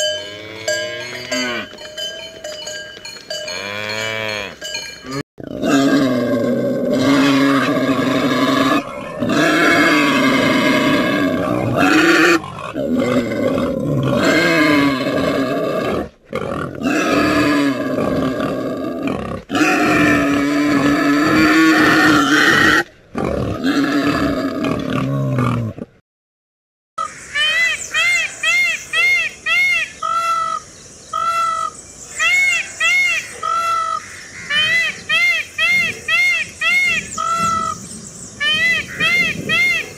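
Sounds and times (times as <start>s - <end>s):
pig calling: 5.5s - 18.6s.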